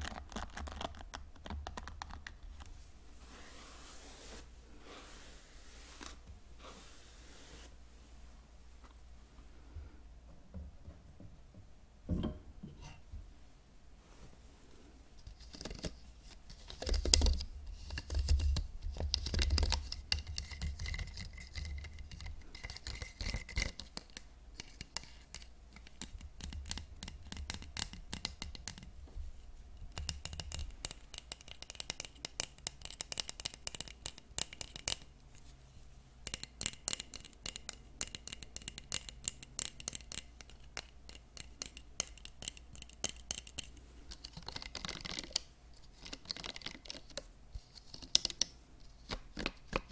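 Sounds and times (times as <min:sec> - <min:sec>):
hairbrush bristles scratching: 0:03.2 - 0:07.8.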